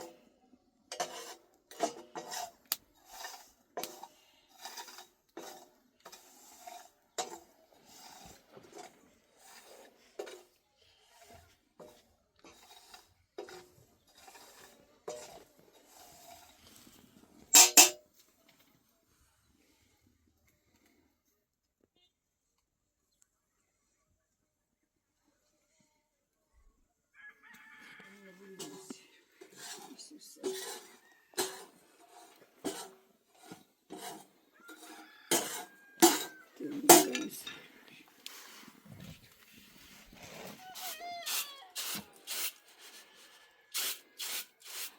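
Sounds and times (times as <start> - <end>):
pots and utensils clinking: 0.9 - 10.5, 11.8 - 16.5, 17.5 - 18.0, 28.6 - 37.7
metal pots knocking and clinking: 7.2 - 7.5, 17.5 - 18.0, 30.4 - 37.7.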